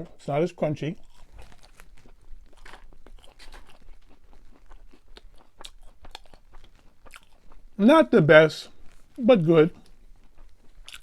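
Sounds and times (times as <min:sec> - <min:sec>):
person chewing fries: 0:00.0 - 0:07.8, 0:08.7 - 0:11.0.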